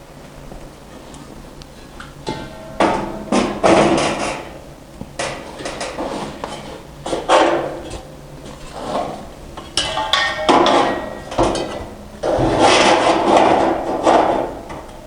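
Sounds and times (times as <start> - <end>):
rubbing and scraping of hose: 5.4 - 9.3.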